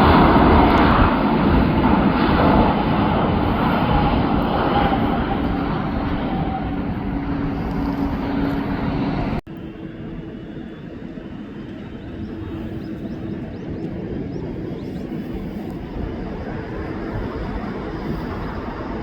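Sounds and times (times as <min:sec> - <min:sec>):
jet airliner engine hum: 0:00.0 - 0:19.0.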